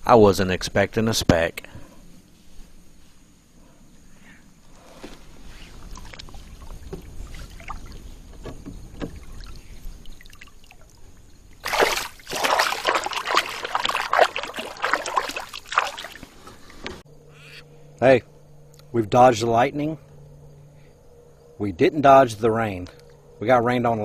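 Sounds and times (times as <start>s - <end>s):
water splashing beside a kayak: 5.4s - 17.0s.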